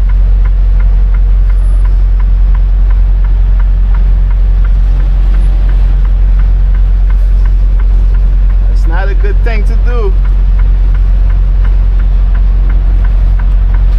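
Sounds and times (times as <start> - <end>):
diesel truck engine hum: 0.0 - 13.9
light even ticking: 0.0 - 13.9.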